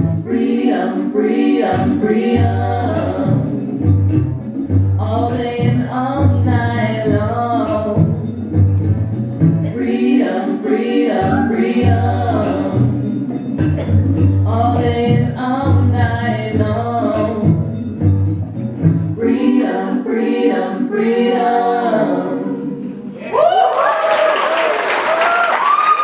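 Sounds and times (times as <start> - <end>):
voices singing a song: 0.0 - 8.8, 9.5 - 18.0, 19.0 - 23.3
low bass line: 1.8 - 9.8, 11.2 - 19.2
audience applause and cheering: 23.2 - 26.0.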